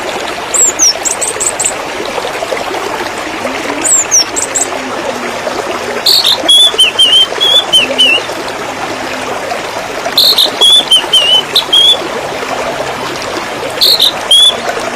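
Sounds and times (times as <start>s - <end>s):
water trickling and splashing: 0.0s - 14.9s
songbird singing: 0.5s - 1.7s, 3.6s - 4.8s, 6.0s - 8.4s, 10.2s - 12.0s, 13.8s - 14.7s.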